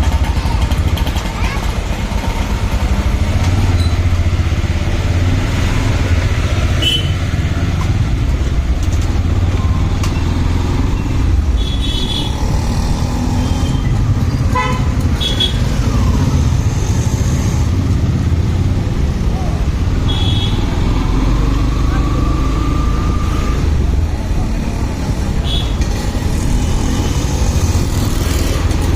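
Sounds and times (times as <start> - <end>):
motorcycle engine rumble: 0.0 - 28.9
vehicle horn toots: 6.8 - 7.2, 11.6 - 12.4, 14.5 - 15.6, 20.1 - 20.7.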